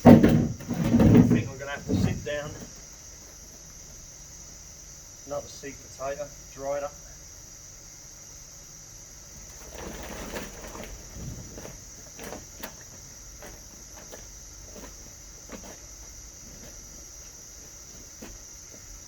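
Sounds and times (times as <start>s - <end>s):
hands rummaging through compost: 9.4s - 18.7s.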